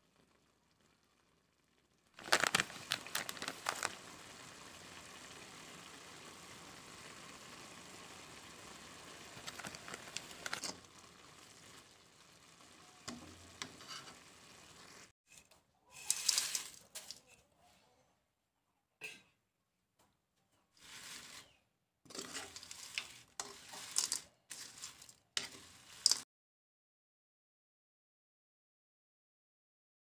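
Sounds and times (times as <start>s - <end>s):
vegetables sizzling in oil: 2.1s - 15.1s, 15.9s - 17.3s, 20.8s - 26.2s
steel spoon scraping a pan: 9.4s - 11.0s, 13.1s - 14.7s, 15.3s - 17.5s, 20.8s - 26.2s.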